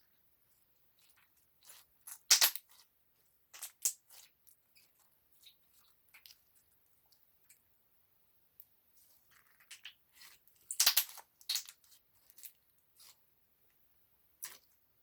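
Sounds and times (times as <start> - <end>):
crunchy eating sounds: 0.5 - 2.9, 3.5 - 7.6, 9.0 - 13.2, 14.4 - 14.8.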